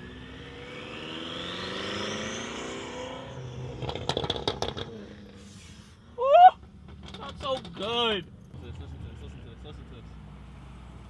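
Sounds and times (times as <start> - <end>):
car engine revving: 0.0 - 5.9
sharp exhaust pops and cracks: 3.8 - 5.2, 6.6 - 8.2.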